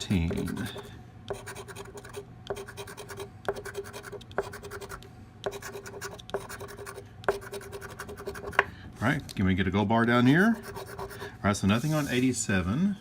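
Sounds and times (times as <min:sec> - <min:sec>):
scratch-off ticket being scratched: 0:00.0 - 0:08.6, 0:10.6 - 0:11.2.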